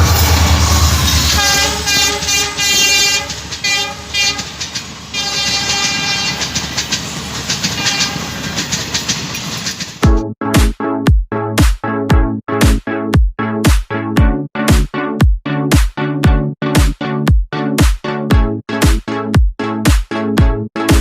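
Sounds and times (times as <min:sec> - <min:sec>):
train horn blasts: 0:00.0 - 0:06.6, 0:07.8 - 0:08.4
deep rumble of moving train: 0:00.0 - 0:10.2.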